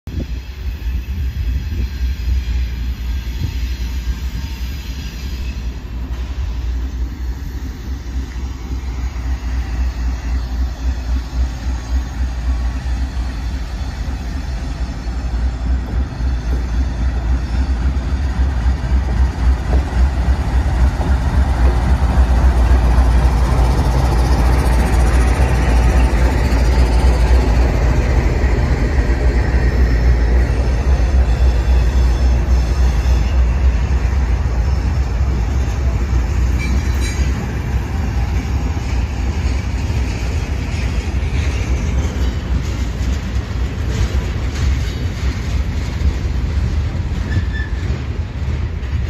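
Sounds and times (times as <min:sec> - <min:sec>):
freight train rumbling past: 0:00.1 - 0:49.0.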